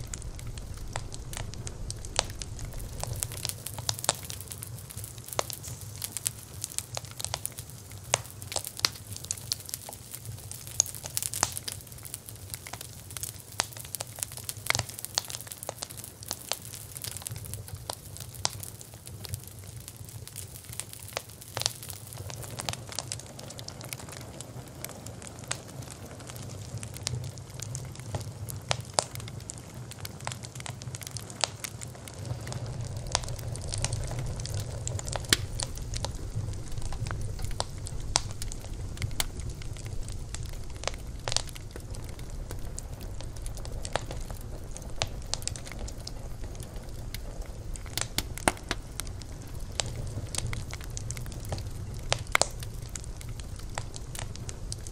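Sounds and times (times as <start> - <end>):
low rumble of flames: 0.0 - 54.9
wood fire crackling and popping: 0.0 - 54.9.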